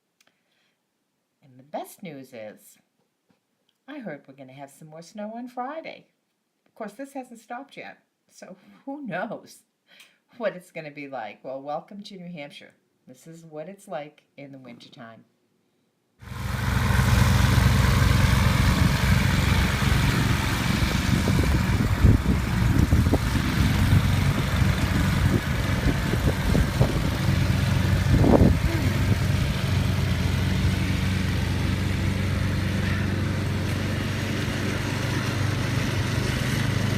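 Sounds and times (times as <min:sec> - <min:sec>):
engine running steadily: 0:16.2 - 0:36.9.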